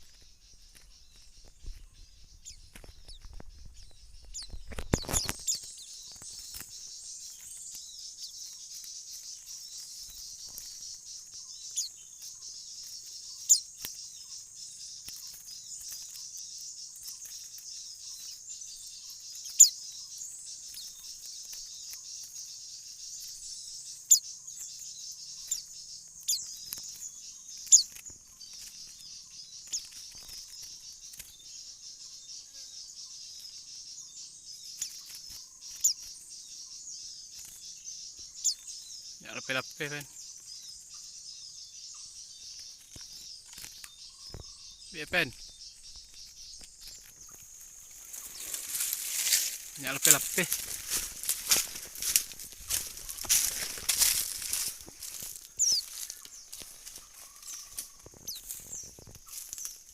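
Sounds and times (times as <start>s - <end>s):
bird chirps: 0.0s - 59.9s
high-pitched insect buzz: 0.0s - 59.9s
handling rustle: 46.6s - 59.9s.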